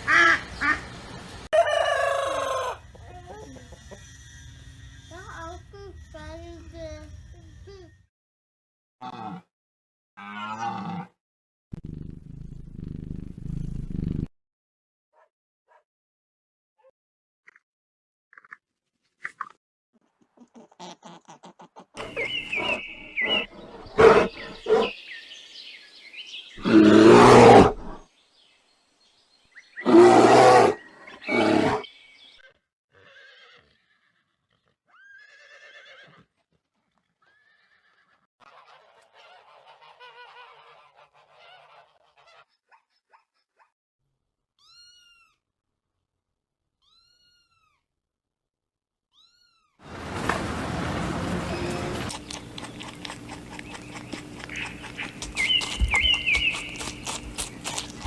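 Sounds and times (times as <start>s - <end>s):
animal calls: 20.4s - 25.0s, 26.6s - 28.0s, 29.8s - 33.7s, 50.9s - 58.0s.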